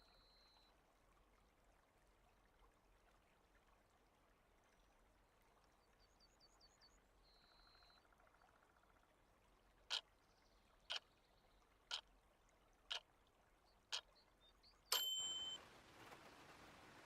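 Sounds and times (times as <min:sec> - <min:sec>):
bright chime: 0:14.9 - 0:15.6
rain sound hiss: 0:15.2 - 0:17.0.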